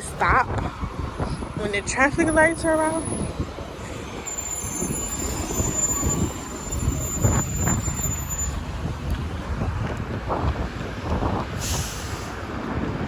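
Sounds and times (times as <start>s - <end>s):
road traffic passing: 0.0s - 13.0s
thin high-pitched squeal: 4.2s - 8.6s.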